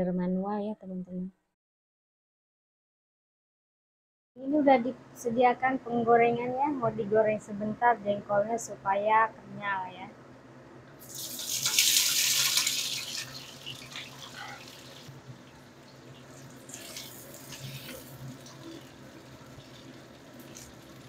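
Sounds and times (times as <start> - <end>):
beans sizzling in hot oil: 11.0 - 21.0.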